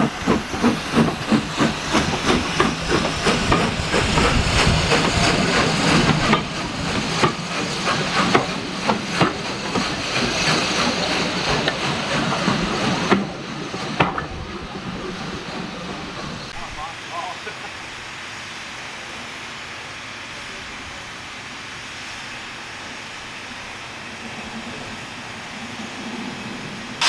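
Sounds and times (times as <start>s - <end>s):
steam hissing: 0.0s - 27.0s
steam locomotive exhaust beats: 0.0s - 27.0s.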